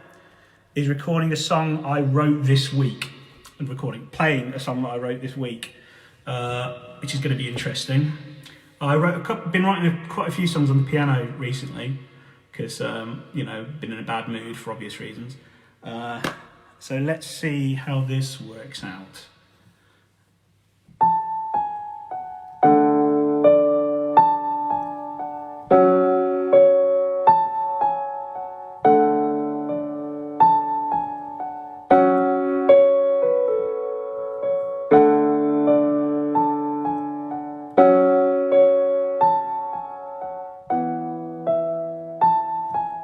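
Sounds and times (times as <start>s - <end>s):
slow piano chords and notes: 0.0s - 5.3s, 20.8s - 43.0s.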